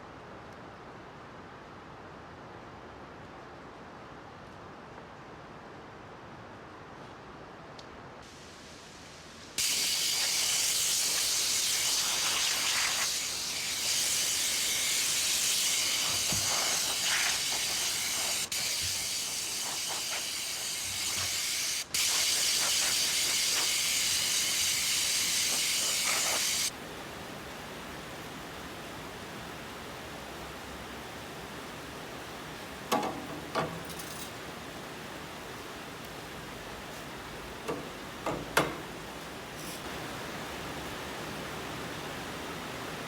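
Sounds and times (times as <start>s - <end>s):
loud woodworking hiss: 8.3s - 26.7s.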